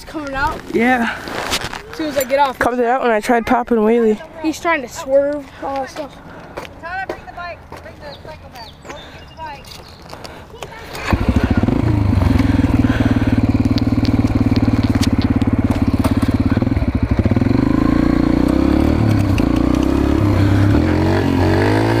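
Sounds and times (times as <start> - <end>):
small engine revving: 10.9 - 22.0.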